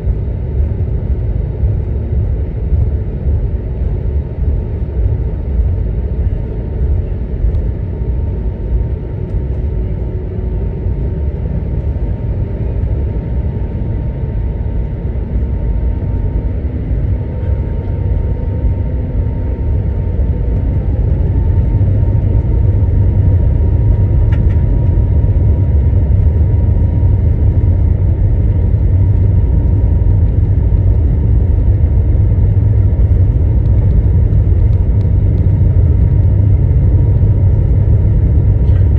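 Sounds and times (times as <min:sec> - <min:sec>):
faint steady whine: 0:00.0 - 0:38.9
jet engines low rumble: 0:00.0 - 0:38.9.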